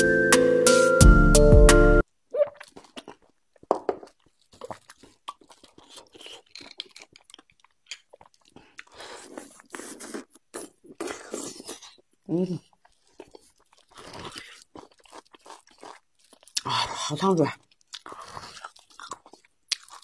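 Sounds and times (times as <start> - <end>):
piano background music: 0.0 - 2.0
wet chewing and lip smacks: 2.4 - 16.7, 17.5 - 20.0.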